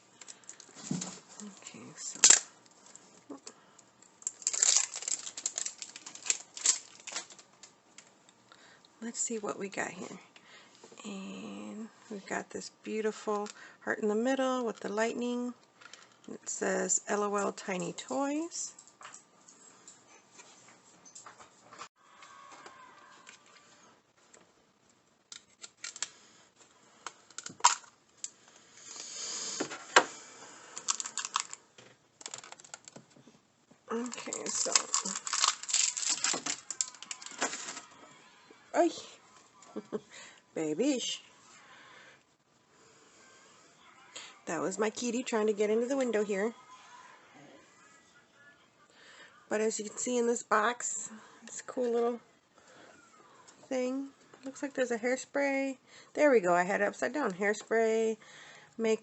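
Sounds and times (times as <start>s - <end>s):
plastic packaging crinkling: 4.2s - 8.1s, 25.3s - 26.1s, 27.1s - 28.3s, 30.8s - 33.2s, 33.9s - 38.0s
sharp clicks and crackles: 4.2s - 8.1s, 25.3s - 26.2s, 30.8s - 33.2s, 34.0s - 37.8s.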